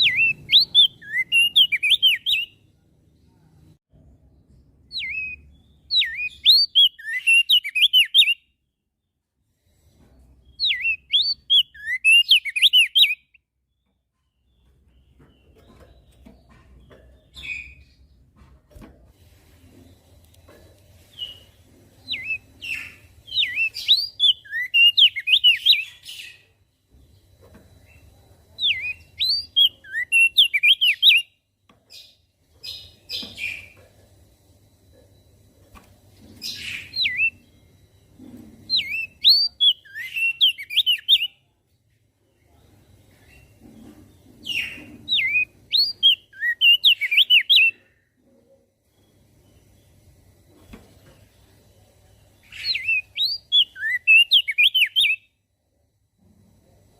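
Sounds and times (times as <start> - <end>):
bird singing high chirps: 0.0 - 2.6, 4.8 - 8.7, 10.4 - 18.1, 21.0 - 33.8, 36.4 - 37.6, 38.7 - 41.5, 44.5 - 47.9, 52.4 - 55.4.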